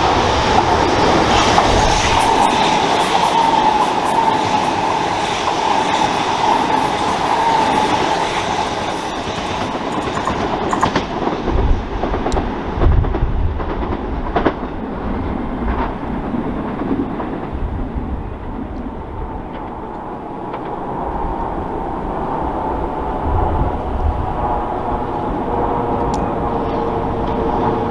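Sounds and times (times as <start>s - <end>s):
train wheels clacking over rail joints: 0.0s - 17.7s
electric train whine: 0.0s - 27.9s
low train rumble: 0.0s - 27.9s.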